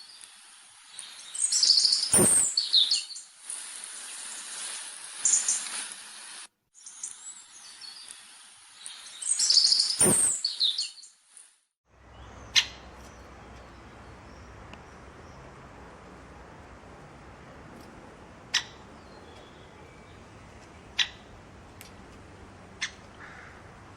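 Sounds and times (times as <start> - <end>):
small birds chirping: 0.9 - 3.3, 6.8 - 11.1, 12.0 - 23.9
sharp click: 2.1 - 2.6, 10.0 - 10.4
low hum: 11.9 - 23.9.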